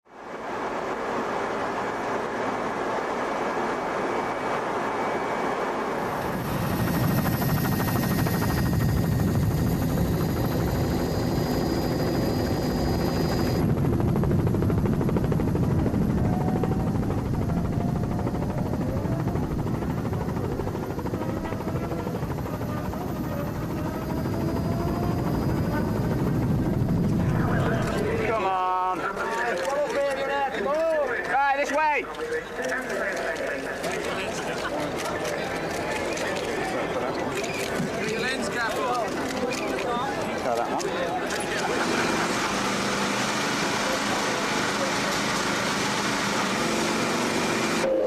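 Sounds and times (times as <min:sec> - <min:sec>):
faint engine tones: 0:05.9 - 0:28.2.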